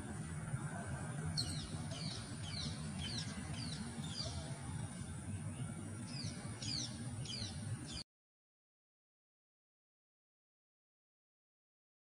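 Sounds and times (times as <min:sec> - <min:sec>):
bird chirping: 0:01.3 - 0:08.0.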